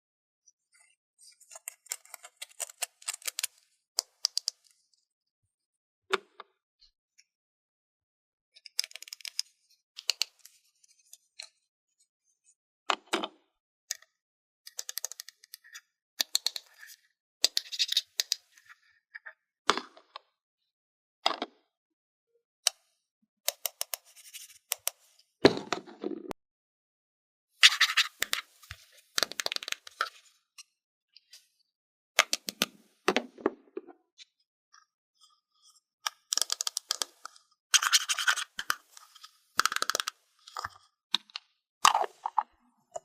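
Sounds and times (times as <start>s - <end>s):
plastic toy pieces clicking: 14.7s - 15.6s, 36.1s - 38.8s, 39.6s - 41.3s.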